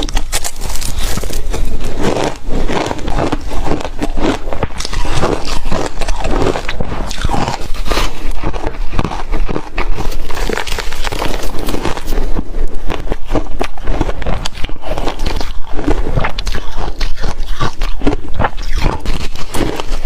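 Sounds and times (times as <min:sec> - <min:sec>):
ice crunching while chewed: 0:00.0 - 0:20.0.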